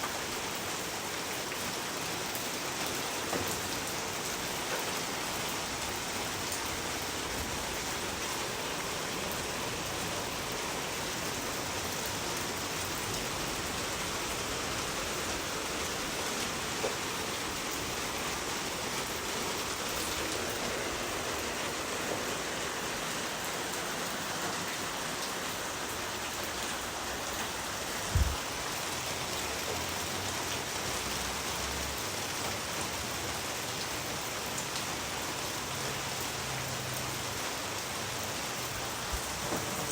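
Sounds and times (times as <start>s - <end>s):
steady rain falling: 0.0s - 39.9s
low thump: 28.1s - 28.4s.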